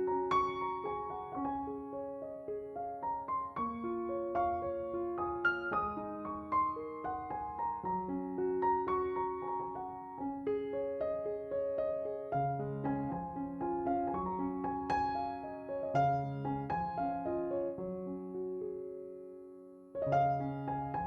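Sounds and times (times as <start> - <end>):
gentle piano melody: 0.0 - 21.0.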